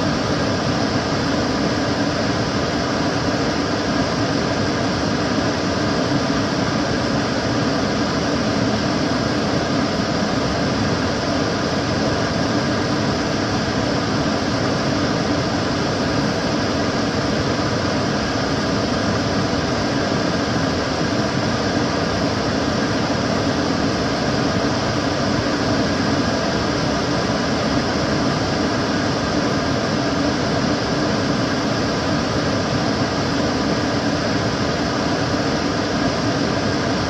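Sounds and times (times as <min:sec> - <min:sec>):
extractor fan running: 0:00.0 - 0:37.0.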